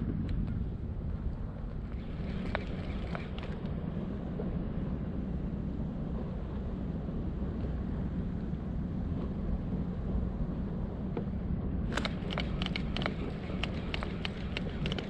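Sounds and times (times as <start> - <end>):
wind buffeting microphone: 0.0 - 15.0
irregular sharp clicks: 11.9 - 15.0.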